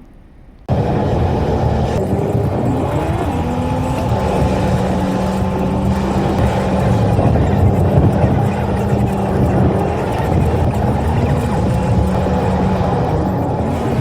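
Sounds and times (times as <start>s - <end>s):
car engine running: 0.5s - 14.0s.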